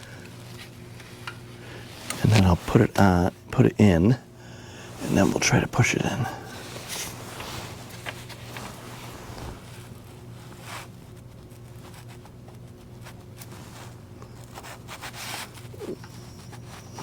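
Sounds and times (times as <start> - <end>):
scraping and rustling handling: 0.0 - 17.0
steady low hum: 0.0 - 17.0.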